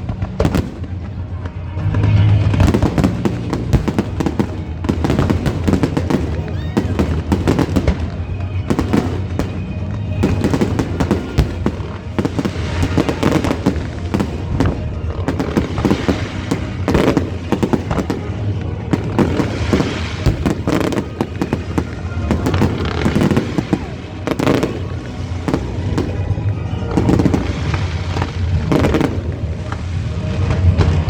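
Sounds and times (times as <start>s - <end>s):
fireworks bangs and crackling: 0.0s - 31.0s
music playing: 0.0s - 31.0s.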